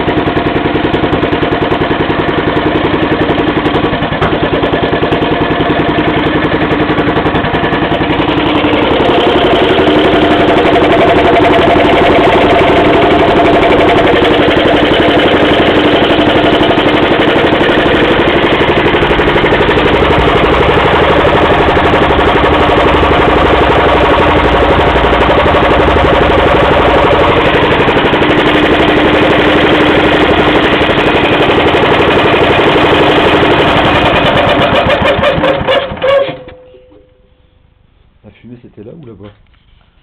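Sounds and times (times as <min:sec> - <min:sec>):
petrol engine running steadily: 0:00.0 - 0:36.0.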